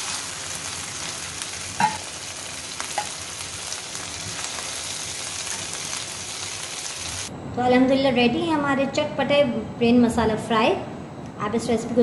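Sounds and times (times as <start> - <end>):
food sizzling in oil: 0.0 - 7.3.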